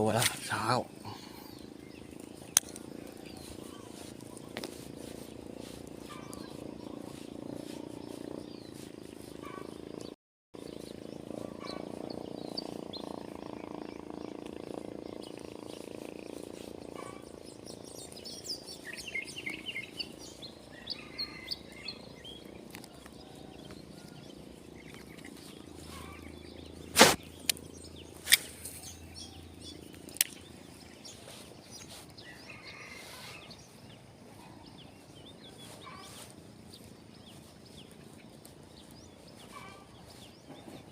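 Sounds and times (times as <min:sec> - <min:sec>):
small birds chirping: 0:00.0 - 0:40.9
steady low rumble: 0:00.8 - 0:20.8.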